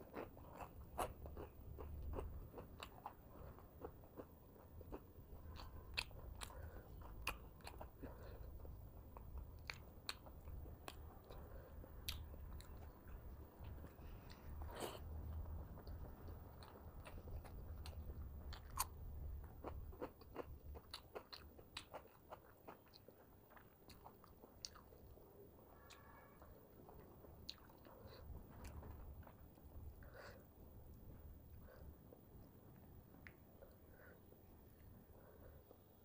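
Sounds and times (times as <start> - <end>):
chewing food: 0.0 - 35.9
faint low hum: 0.0 - 36.0
chewing with wet mouth clicks: 0.1 - 15.0, 15.8 - 25.2, 26.9 - 29.4.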